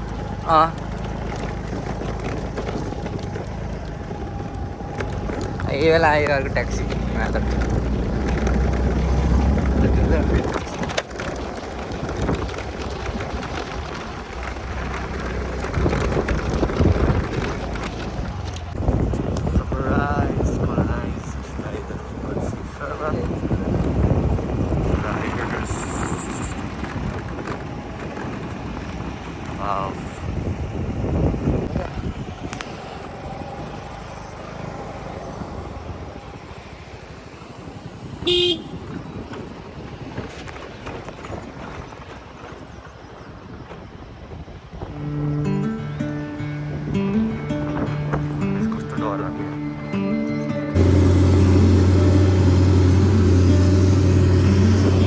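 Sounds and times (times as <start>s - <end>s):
vehicle engine running: 0.0s - 36.4s, 44.9s - 55.0s
outdoor road noise rumble: 0.0s - 55.0s
vehicle horn beep: 38.2s - 38.8s.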